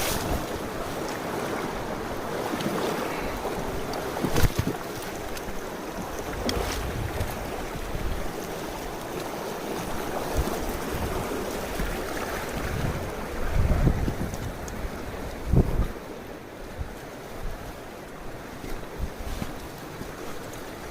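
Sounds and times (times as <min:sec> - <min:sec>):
mountain stream rushing: 0:00.0 - 0:20.9
wind buffeting microphone: 0:06.0 - 0:08.9, 0:10.0 - 0:16.1.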